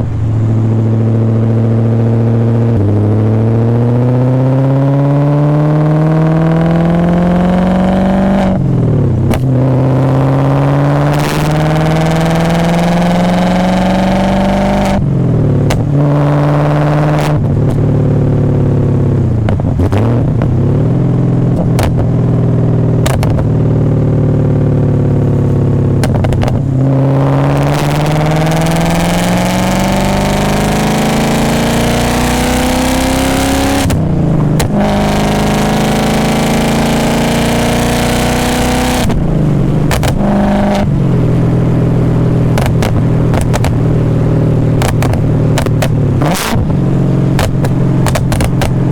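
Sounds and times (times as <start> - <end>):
car engine revving: 0.0 - 48.9
sharp knocks: 47.4 - 48.8.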